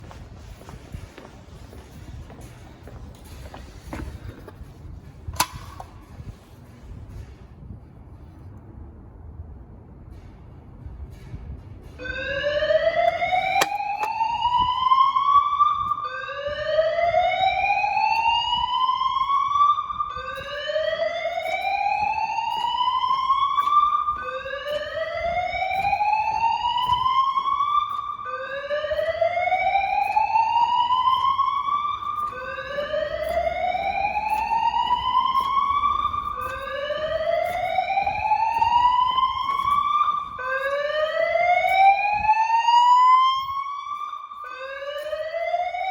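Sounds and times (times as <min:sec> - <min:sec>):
fire alarm whoop tone: 0:12.0 - 0:45.9.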